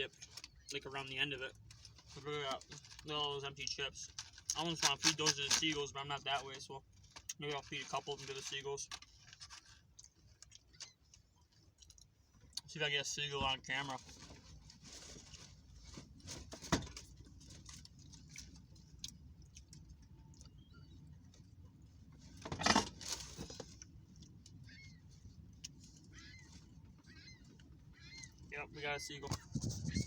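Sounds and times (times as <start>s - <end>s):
faint seagull calls: 24.6s - 25.2s, 26.0s - 30.0s.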